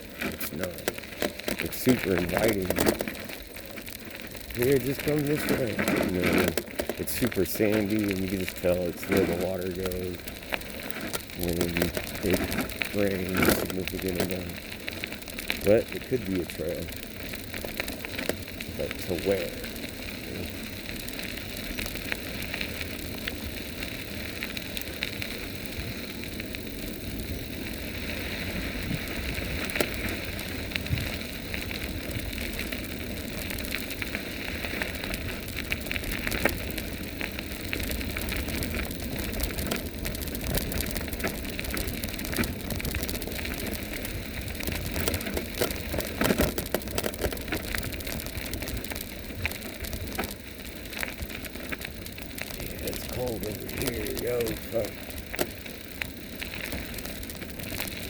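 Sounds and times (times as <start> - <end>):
tyres crunching on gravel: 0.0 - 58.0.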